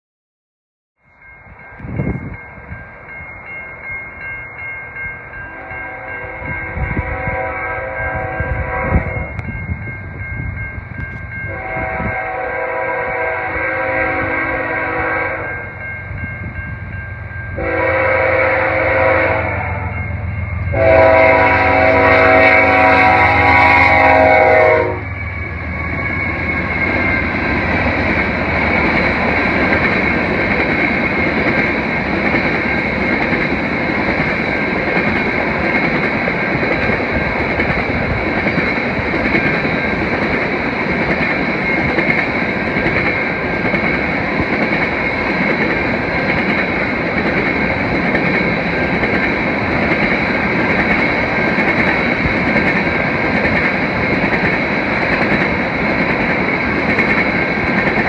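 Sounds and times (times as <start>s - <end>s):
train wheels rushing on rail: 1.2s - 58.0s
locomotive horn blasts: 5.5s - 9.4s, 11.4s - 15.7s, 17.6s - 25.2s.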